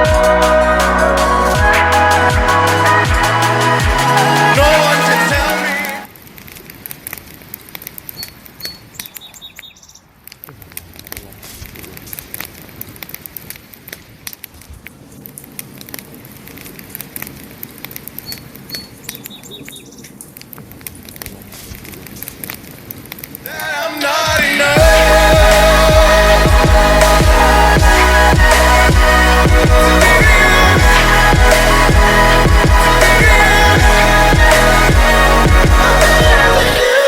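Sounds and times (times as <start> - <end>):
wood fire crackling and popping: 6.1 - 9.3, 10.1 - 24.7.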